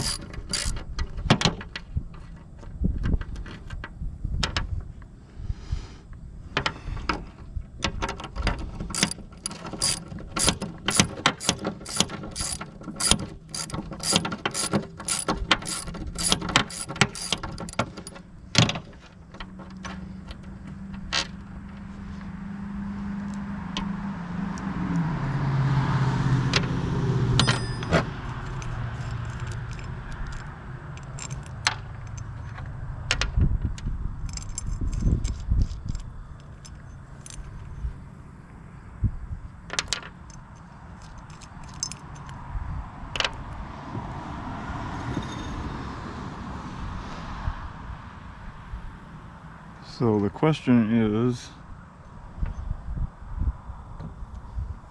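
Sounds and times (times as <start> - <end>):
socket ratchet clicking: 0.0 - 1.2, 8.9 - 18.2.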